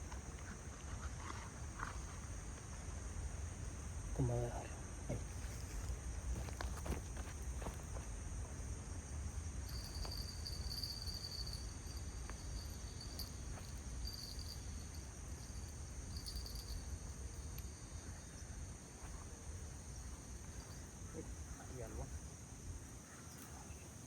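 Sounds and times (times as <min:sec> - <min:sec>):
insects trilling: 0:00.0 - 0:24.0
lower insect trill in bursts: 0:08.6 - 0:24.0.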